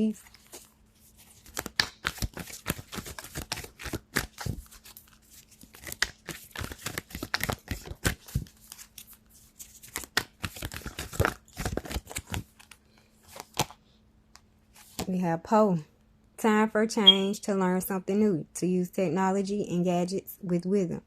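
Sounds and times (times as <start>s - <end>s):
paper rustling: 0.1s - 13.7s
cards being shuffled: 0.1s - 13.8s.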